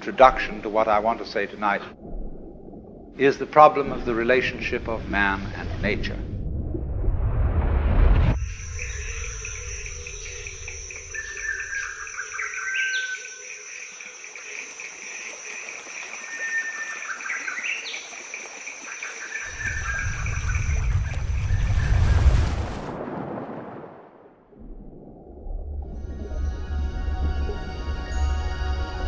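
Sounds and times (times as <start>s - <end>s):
low rumble: 3.8s - 12.0s, 19.5s - 23.0s, 24.5s - 28.5s
birds calling: 8.4s - 14.2s, 16.0s - 22.0s
insects buzzing and trilling: 8.4s - 22.0s.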